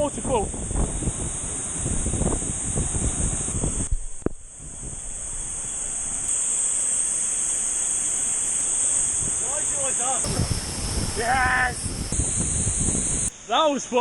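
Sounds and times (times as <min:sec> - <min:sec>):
water buffeting microphone: 0:09.2 - 0:13.3.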